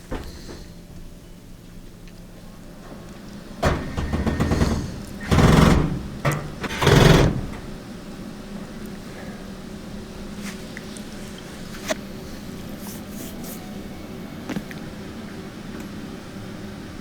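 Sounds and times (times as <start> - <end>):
sheet metal panel scraping and rattling: 2.8 - 7.9.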